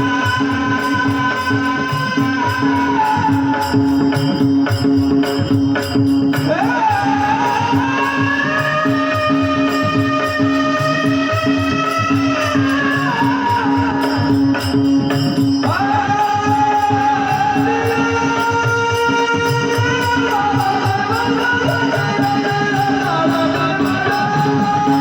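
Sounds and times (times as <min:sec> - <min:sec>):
person singing long gliding notes: 0:00.0 - 0:04.2, 0:15.6 - 0:25.0
jingling cymbals: 0:00.0 - 0:25.0
rhythmic percussion: 0:00.0 - 0:25.0.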